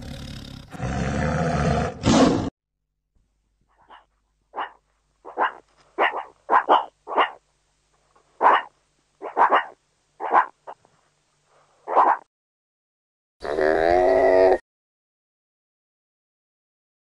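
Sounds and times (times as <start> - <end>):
meerkats calling: 3.8 - 7.4, 8.4 - 10.9.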